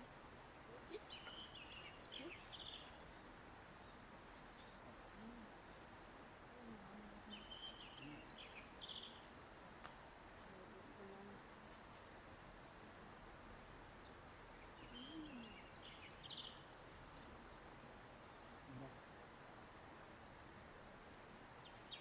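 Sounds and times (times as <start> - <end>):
low steady outdoor hiss: 0.0 - 22.0
birds chattering: 0.7 - 3.0, 10.5 - 17.4
faint high bird chirps: 0.8 - 3.0, 11.5 - 17.4.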